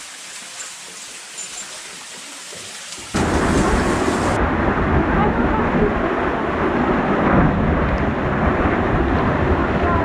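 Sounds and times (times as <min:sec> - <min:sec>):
rushing water hiss: 0:00.0 - 0:04.4
deep roar of pouring water: 0:00.0 - 0:10.0.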